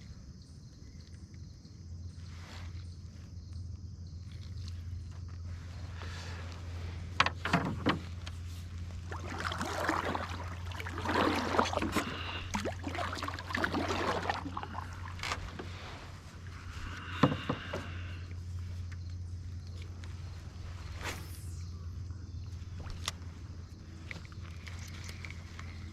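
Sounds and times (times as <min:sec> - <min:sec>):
paddle swishing through water: 0:07.5 - 0:18.8.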